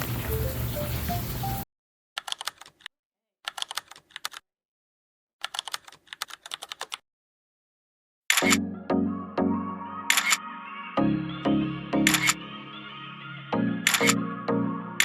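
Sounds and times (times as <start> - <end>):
keyboard typing clicks: 2.2 - 2.9, 3.5 - 4.4, 5.4 - 7.0, 8.3 - 8.6, 10.1 - 10.4, 12.1 - 12.4, 13.9 - 14.2
music: 8.4 - 15.0.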